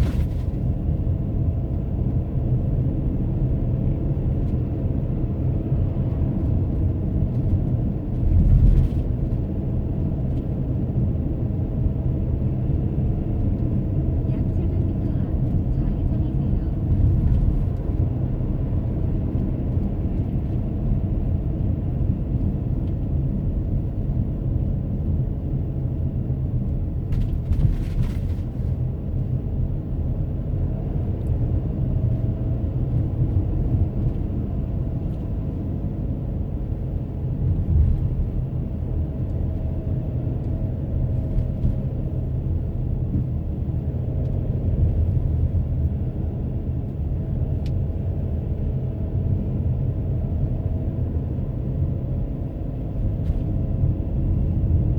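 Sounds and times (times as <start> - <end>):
car tyres and engine rumble: 0.0 - 54.9.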